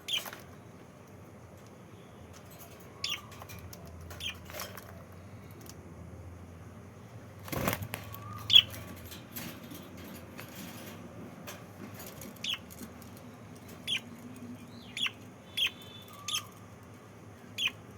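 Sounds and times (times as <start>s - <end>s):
bird chirps: 2.9s - 4.5s, 8.0s - 8.9s, 12.4s - 12.7s, 13.7s - 16.7s, 17.5s - 17.8s
wings fluttering: 7.4s - 11.0s.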